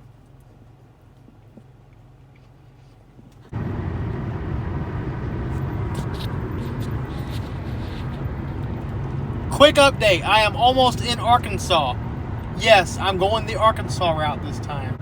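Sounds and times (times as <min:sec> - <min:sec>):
car road and engine noise: 0:00.0 - 0:15.0
low hum: 0:03.6 - 0:15.0.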